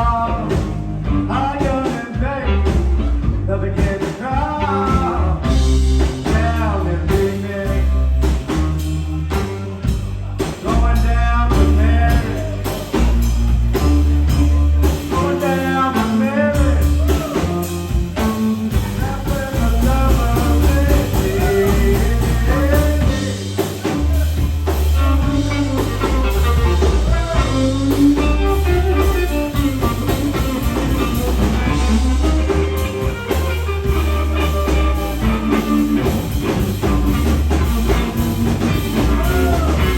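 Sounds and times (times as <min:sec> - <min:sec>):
blues-rock band playing: 0:00.0 - 0:39.9
heavy pulsing bass line: 0:00.0 - 0:39.9
person singing: 0:00.0 - 0:39.9.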